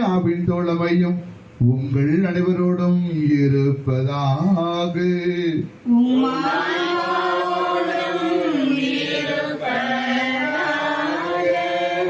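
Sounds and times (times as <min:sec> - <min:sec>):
congregation chanting: 0:05.9 - 0:12.0.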